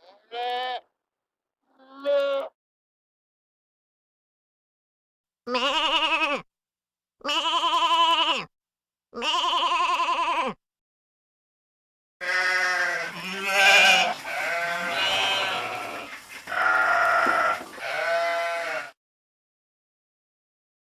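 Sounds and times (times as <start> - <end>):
sheep bleating: 0.0 - 0.9, 1.7 - 2.6, 5.5 - 6.5, 7.2 - 8.5, 9.2 - 10.6, 12.2 - 19.0.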